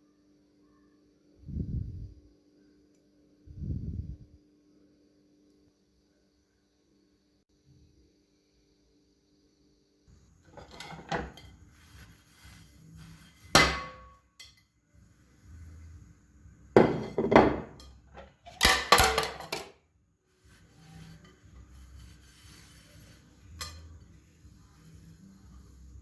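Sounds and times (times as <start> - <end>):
kitchenware clattering: 10.4 - 12.2, 13.1 - 14.6, 16.8 - 19.8, 20.8 - 24.1
kitchenware knock with ring: 16.8 - 17.8.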